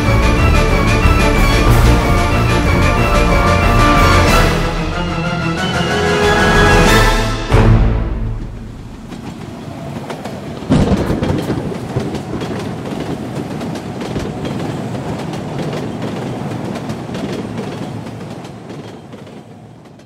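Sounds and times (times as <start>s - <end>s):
railway carriage wheels clicking: 8.4s - 20.0s.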